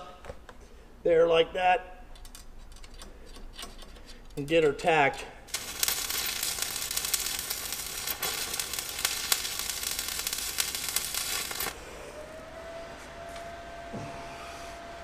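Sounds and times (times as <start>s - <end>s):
welding arc crackling: 5.5s - 11.8s.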